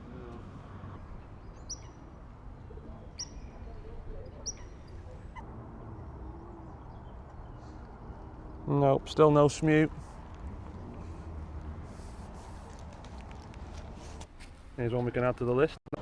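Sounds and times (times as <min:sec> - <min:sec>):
high-pitched bird calls: 0:01.4 - 0:02.1, 0:03.1 - 0:08.5.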